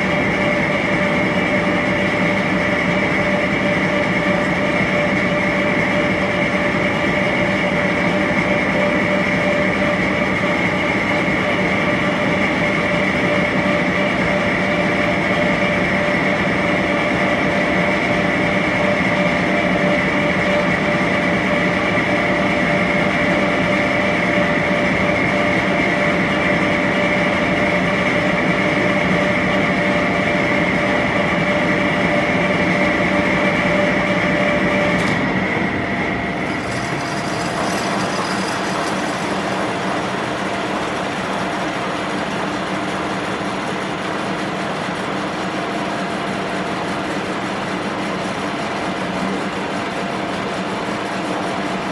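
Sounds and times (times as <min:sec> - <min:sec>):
machine tool running with whine: 0:00.0 - 0:51.9.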